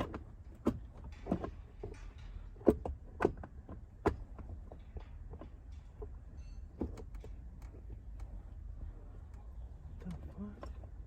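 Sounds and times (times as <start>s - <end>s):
plastic and metal knocking: 0.0s - 7.4s.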